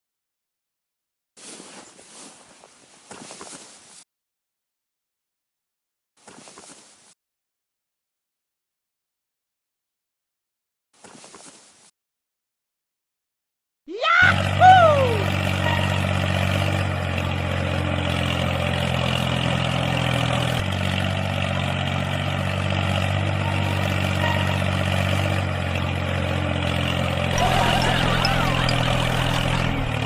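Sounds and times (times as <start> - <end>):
engine idling: 14.3 - 30.0.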